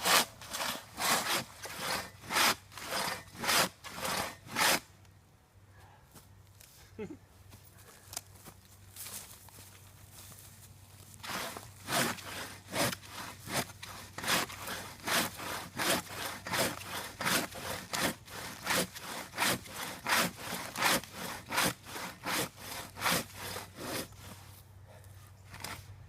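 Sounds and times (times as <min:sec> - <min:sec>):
hand saw cutting wood: 0:00.0 - 0:04.8, 0:11.2 - 0:24.5.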